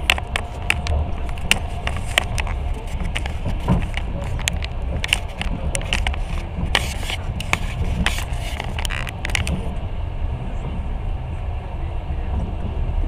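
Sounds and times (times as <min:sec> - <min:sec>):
wheels clicking and rattling: 0:00.0 - 0:10.0
train rumbling on track: 0:00.0 - 0:13.0.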